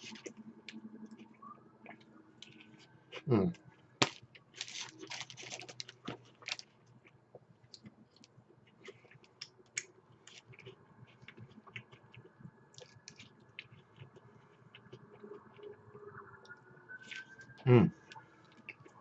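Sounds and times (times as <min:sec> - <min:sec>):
faint chewing crunches: 0:00.0 - 0:19.0.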